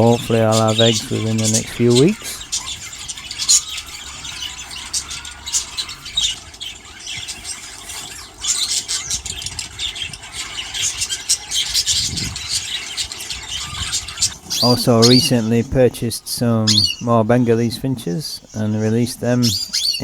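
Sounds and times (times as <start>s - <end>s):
budgerigars chattering: 0.0s - 20.0s.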